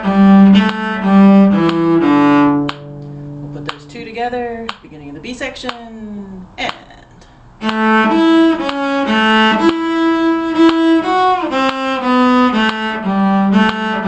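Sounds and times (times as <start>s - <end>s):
fiddle playing bowed notes: 0.0s - 4.4s, 7.6s - 14.0s.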